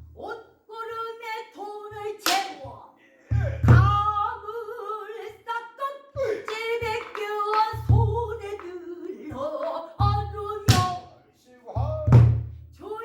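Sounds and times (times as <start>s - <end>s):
barrel drum low beat: 3.3s - 4.3s, 7.8s - 8.4s, 10.0s - 11.0s, 11.8s - 12.6s.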